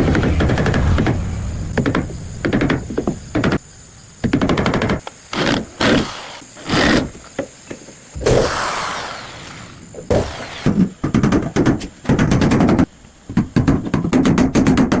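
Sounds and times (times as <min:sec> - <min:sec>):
sharp knocks: 0:00.0 - 0:05.1.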